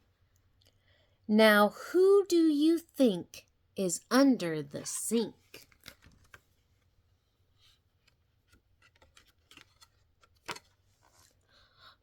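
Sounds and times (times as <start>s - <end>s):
book pages rustling and clicking: 5.5s - 6.9s, 7.6s - 11.4s.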